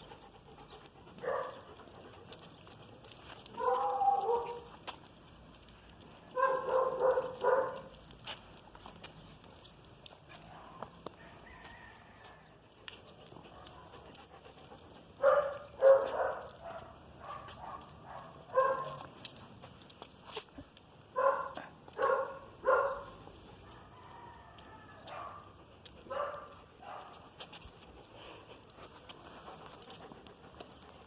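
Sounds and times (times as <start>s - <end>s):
dog barking: 1.2s - 1.6s, 3.6s - 4.7s, 6.4s - 7.9s, 15.2s - 19.1s, 21.2s - 23.2s, 25.1s - 25.5s, 26.1s - 27.2s.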